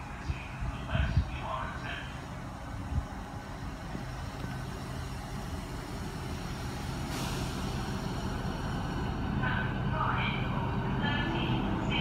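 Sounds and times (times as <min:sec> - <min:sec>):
train approaching rumble: 0:00.0 - 0:12.0.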